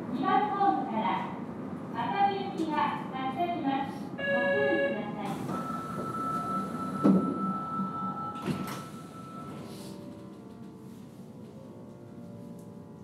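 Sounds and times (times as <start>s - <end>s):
train car steady hum: 0.0s - 13.0s
high door warning tone: 4.2s - 10.8s.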